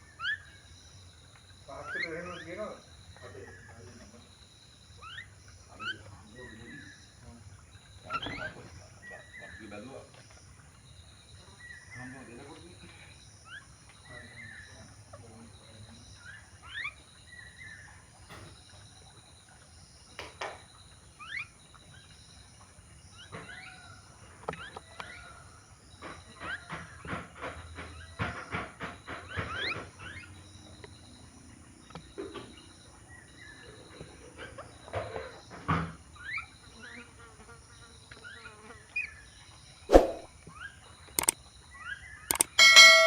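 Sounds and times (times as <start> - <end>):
birds chirping: 0.0 - 43.0
sharp clicks and taps: 42.3 - 42.7
faint high note: 42.6 - 43.0.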